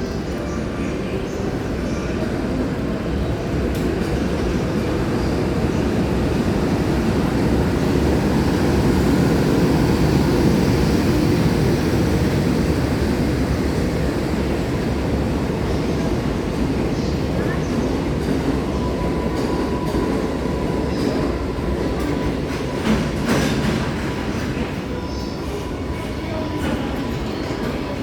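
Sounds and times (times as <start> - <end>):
freight train deep rumble: 0.0 - 28.0.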